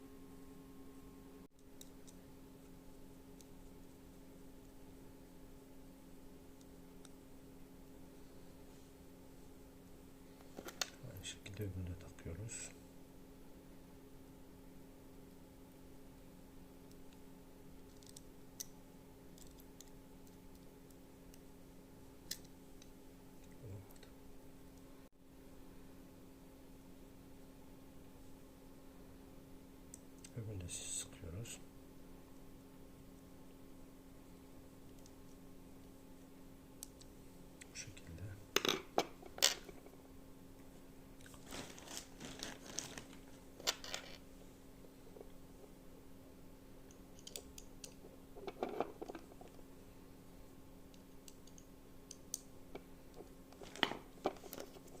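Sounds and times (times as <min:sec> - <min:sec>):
low hum: 0:00.0 - 0:38.6
crackly rustling: 0:39.2 - 0:45.8, 0:52.7 - 0:55.0.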